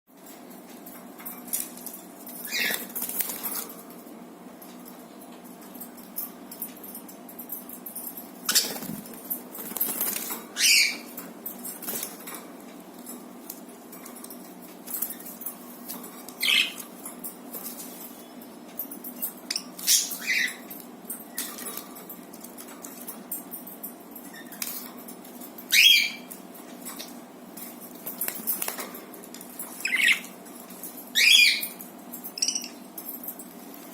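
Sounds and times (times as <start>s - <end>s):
low background hum: 0.1s - 33.9s
clicks and rustles: 26.3s - 31.1s.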